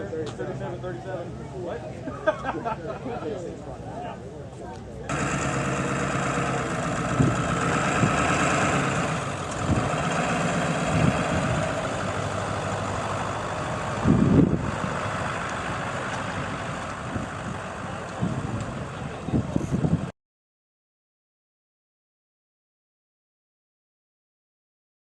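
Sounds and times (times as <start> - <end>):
low buffeting sounds: 3.6 - 20.1
truck engine idling: 5.1 - 20.1.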